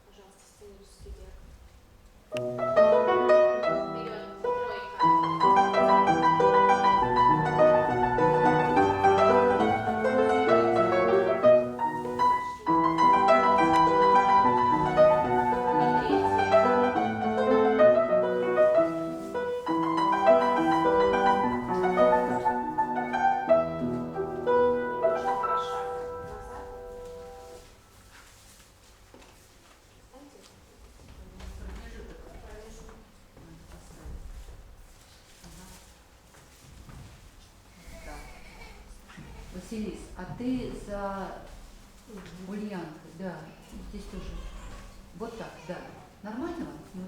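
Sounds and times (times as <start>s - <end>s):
classical piano playing: 2.3s - 27.9s.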